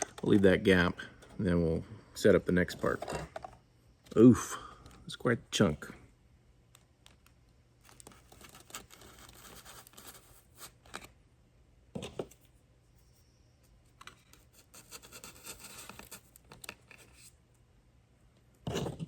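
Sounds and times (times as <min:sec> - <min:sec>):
light scratching and scraping: 0:02.6 - 0:04.3, 0:07.8 - 0:11.1, 0:13.9 - 0:17.4.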